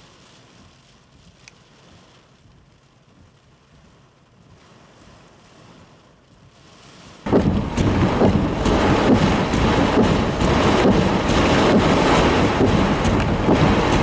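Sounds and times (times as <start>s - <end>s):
rain crackles: 0.0s - 5.9s, 6.6s - 14.0s
faint rain hiss: 0.0s - 14.0s
storm wind buffeting microphone: 7.2s - 14.0s.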